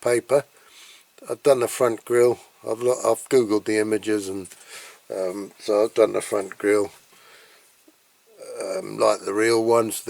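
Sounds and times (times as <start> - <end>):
man talking: 0.0 - 0.5, 1.2 - 7.0, 8.3 - 10.0
room noise: 0.0 - 10.0
faint breath: 0.6 - 1.2, 4.6 - 5.1, 7.1 - 7.8.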